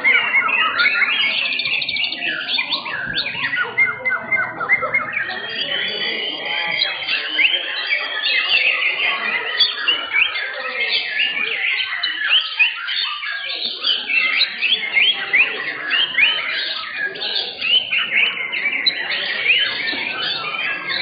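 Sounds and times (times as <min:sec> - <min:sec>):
chorus of birds singing: 0:00.0 - 0:21.0
murmur of crowd voices: 0:00.0 - 0:21.0.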